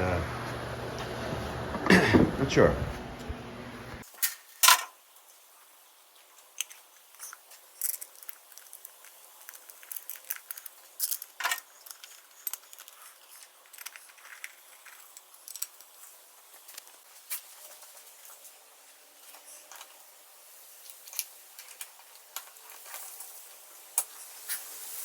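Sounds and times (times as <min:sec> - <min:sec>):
small hard objects clicking: 0:06.4 - 0:17.0.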